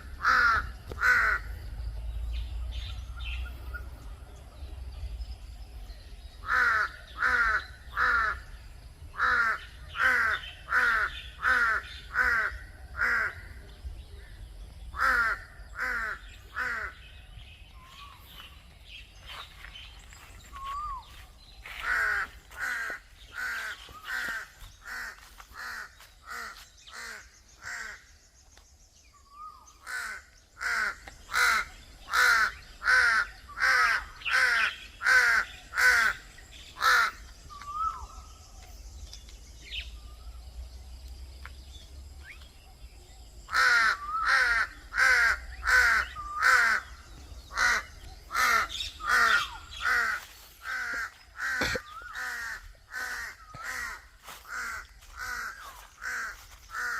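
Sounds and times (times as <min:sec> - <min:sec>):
bird harsh repeated calls: 0:00.0 - 0:04.1, 0:06.4 - 0:40.7, 0:42.2 - 0:56.9.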